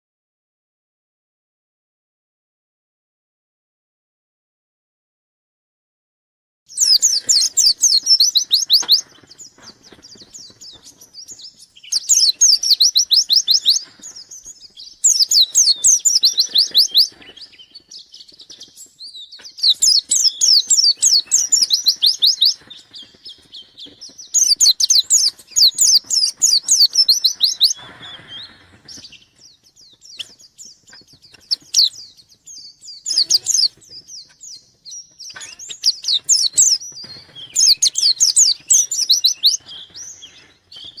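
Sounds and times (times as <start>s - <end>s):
bird twittering trills: 6.7s - 41.0s.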